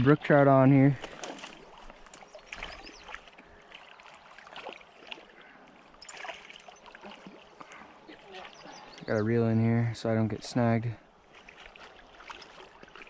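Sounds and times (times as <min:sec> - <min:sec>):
creek water running: 0:00.0 - 0:13.0
small splashes and clicks: 0:00.9 - 0:08.8, 0:11.3 - 0:13.0.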